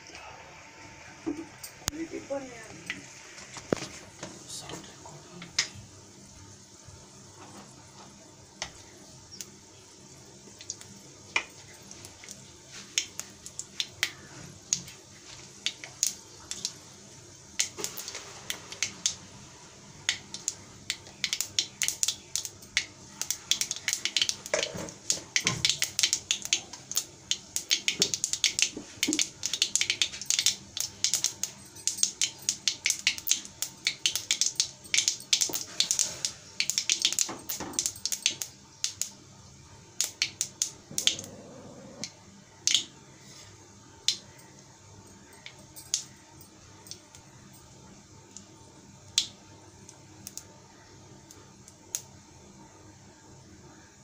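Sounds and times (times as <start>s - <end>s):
vegetables frying in hot oil: 5.6s - 39.2s.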